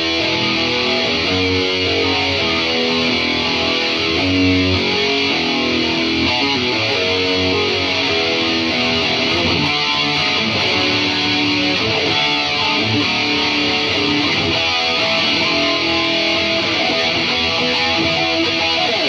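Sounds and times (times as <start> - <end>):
electric guitar single notes: 0.0 - 19.0.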